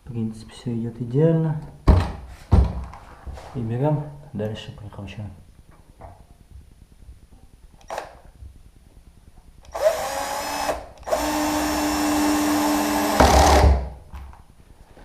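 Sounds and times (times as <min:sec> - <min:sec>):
power drill driving a screw: 0:07.9 - 0:08.1, 0:09.7 - 0:13.8.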